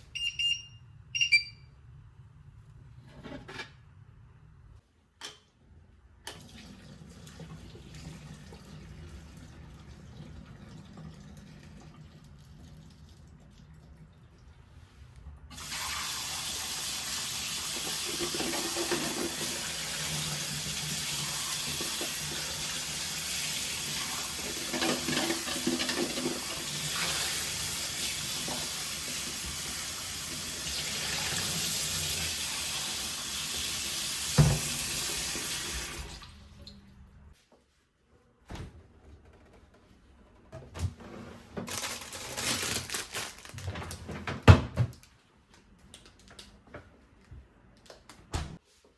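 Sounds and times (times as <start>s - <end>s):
tap running into sink: 34.3s - 34.8s.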